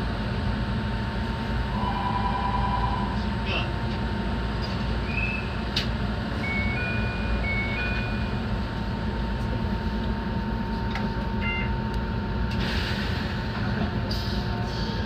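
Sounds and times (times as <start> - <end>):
train wheels and motors rumbling: 0.0 - 15.0.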